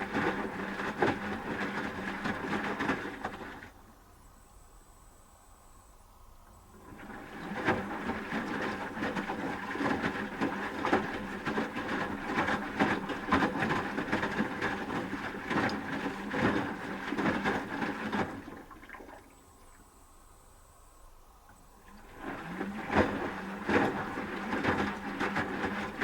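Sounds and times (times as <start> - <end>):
water sloshing and splashing: 0.0 - 3.8, 6.8 - 20.0, 21.2 - 26.0
washing machine drum tumbling: 6.8 - 19.2, 22.0 - 26.0.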